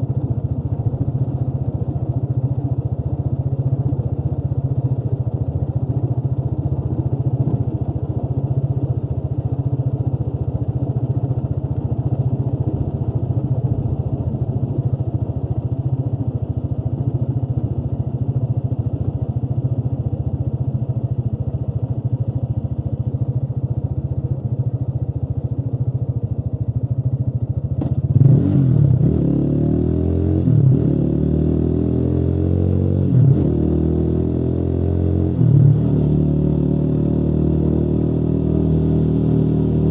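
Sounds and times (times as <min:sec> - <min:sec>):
motorcycle engine revving: 0:27.8 - 0:39.9.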